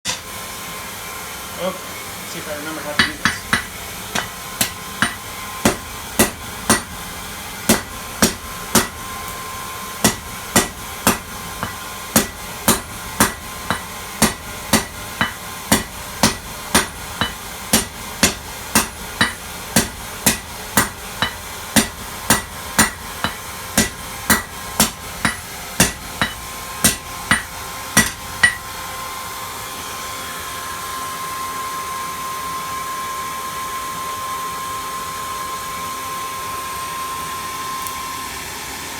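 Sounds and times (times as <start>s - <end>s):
hammer striking metal on anvil: 0.0s - 0.3s, 2.8s - 9.4s, 10.0s - 28.8s
blowing hum with faint whine: 0.1s - 38.9s.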